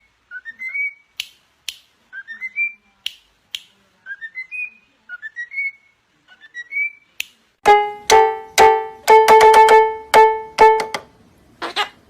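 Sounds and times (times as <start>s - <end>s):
sharp snap-like clicks: 1.2s - 1.9s.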